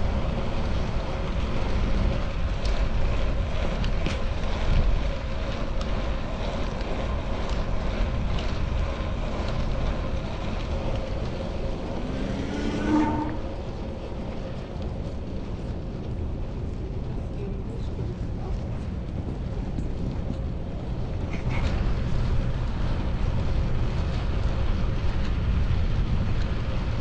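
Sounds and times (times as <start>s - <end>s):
passing city traffic: 0.0s - 27.0s
wind rumbling over camera: 0.0s - 27.0s
short rising pitched sound: 11.8s - 13.8s.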